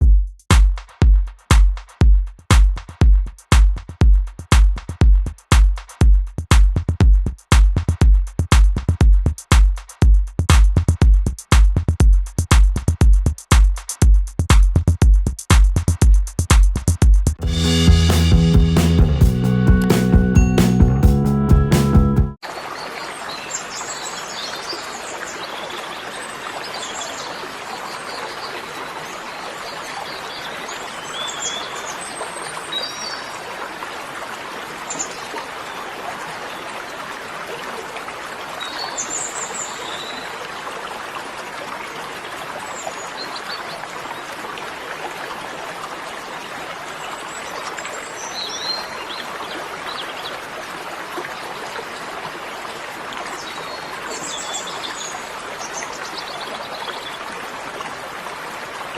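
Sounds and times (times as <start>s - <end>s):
stream running water: 22.4s - 58.9s.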